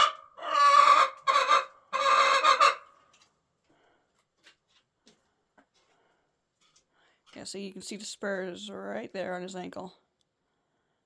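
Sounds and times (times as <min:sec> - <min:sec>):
young rooster harsh calls: 0:00.0 - 0:02.8.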